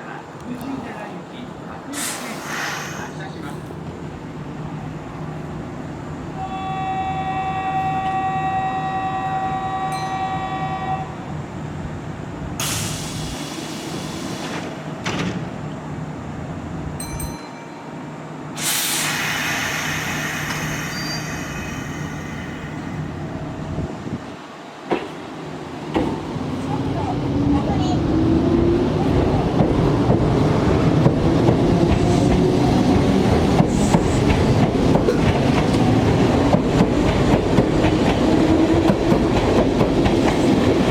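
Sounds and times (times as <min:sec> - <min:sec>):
train electrical hum: 0:00.0 - 0:40.9
loud air hisses: 0:01.9 - 0:03.4, 0:12.6 - 0:14.8, 0:18.5 - 0:23.3.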